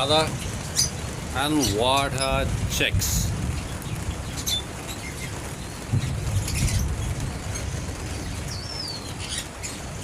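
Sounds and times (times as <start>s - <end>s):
high bird chirps: 3.6s - 10.0s.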